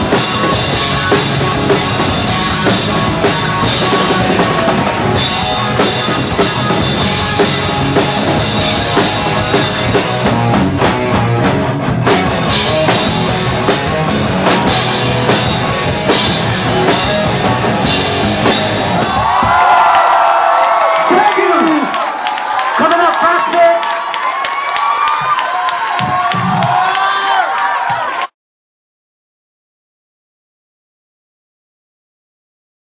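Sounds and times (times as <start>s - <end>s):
rock band playing: 0.0s - 20.0s
drum kit beating: 0.0s - 20.2s, 25.2s - 27.1s.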